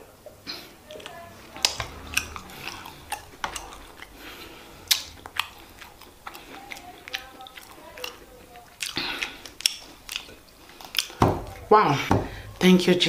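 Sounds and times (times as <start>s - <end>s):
person chewing and swallowing: 0.2s - 12.6s
wet mouth clicks and smacks: 4.8s - 11.2s.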